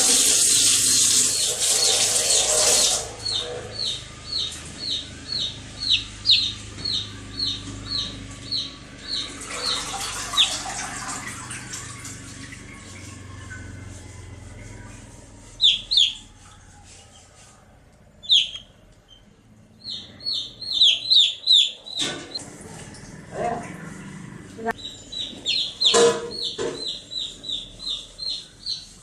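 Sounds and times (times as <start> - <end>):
baby chicks peeping: 0.0 - 10.8, 11.9 - 22.4, 24.7 - 29.0.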